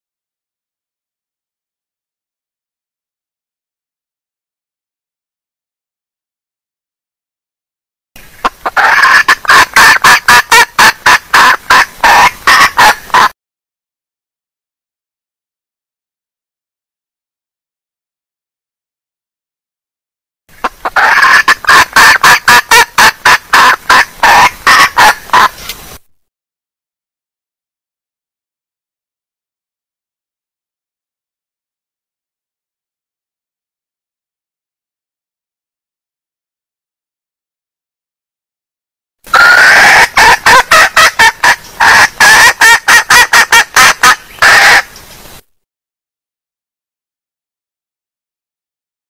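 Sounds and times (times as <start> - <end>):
hen clucking rapidly: 8.4 - 13.3, 20.6 - 25.6, 39.3 - 44.9.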